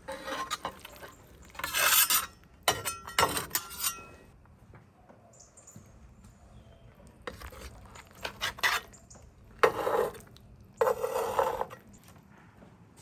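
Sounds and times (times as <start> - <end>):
cutlery scraping dishes: 0.0 - 4.3, 7.3 - 9.0, 9.6 - 10.2, 10.8 - 11.9
cutlery clinking on dishes: 1.7 - 4.2.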